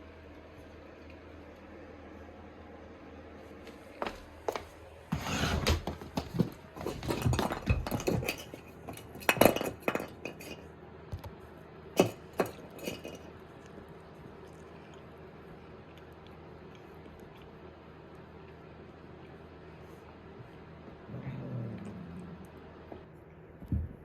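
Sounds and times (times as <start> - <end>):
clattering knocks and clinks: 6.1 - 10.6.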